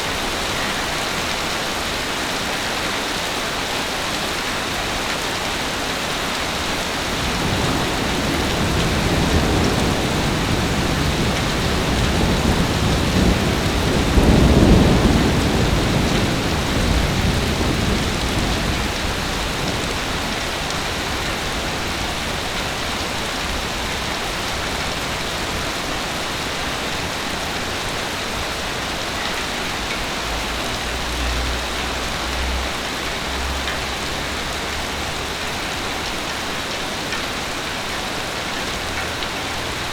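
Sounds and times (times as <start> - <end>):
heavy rain falling: 0.0 - 39.9
thunder rolling: 7.1 - 22.1.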